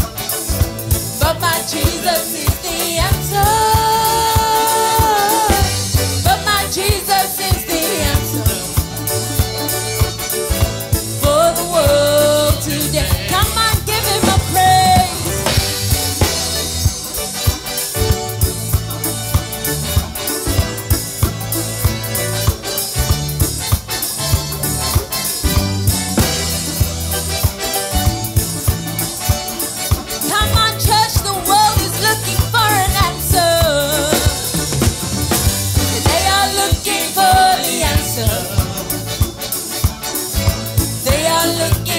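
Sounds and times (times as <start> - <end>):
bass: 0.0 - 41.9
drum kit beat: 0.0 - 41.9
gospel band music: 0.0 - 41.9
keyboard: 0.0 - 41.9
person singing: 1.2 - 9.4, 11.2 - 15.5, 30.3 - 34.8, 35.9 - 39.2.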